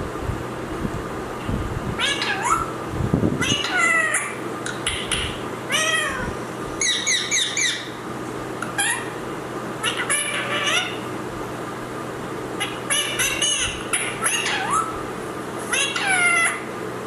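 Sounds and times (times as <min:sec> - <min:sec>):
parrot squawking: 0:02.0 - 0:02.8, 0:03.4 - 0:08.0, 0:08.6 - 0:09.2, 0:09.8 - 0:11.1, 0:12.6 - 0:15.0, 0:15.6 - 0:16.7.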